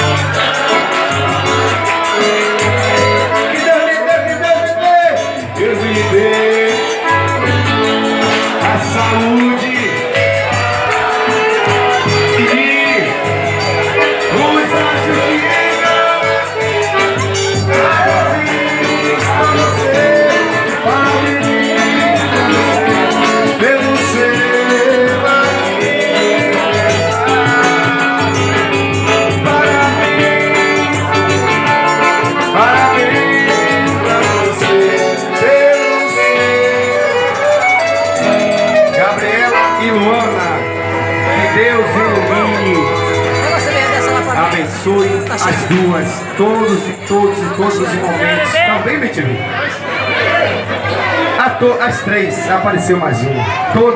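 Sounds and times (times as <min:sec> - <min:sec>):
person singing: 0:00.0 - 0:47.6
band playing live music: 0:00.0 - 0:51.3.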